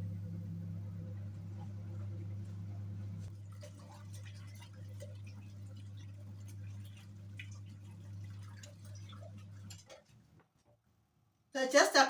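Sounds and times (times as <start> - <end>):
washing machine motor hum: 0.0 - 10.5
water sloshing in tub: 1.2 - 10.8
water drips and small splashes: 1.3 - 10.9.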